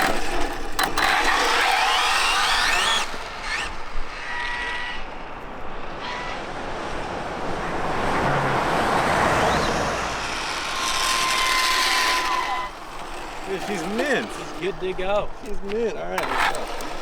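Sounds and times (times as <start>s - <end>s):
electric toy car motor whining: 0.0s - 17.0s
highway traffic noise: 3.0s - 17.0s
vehicle passing: 4.5s - 16.5s.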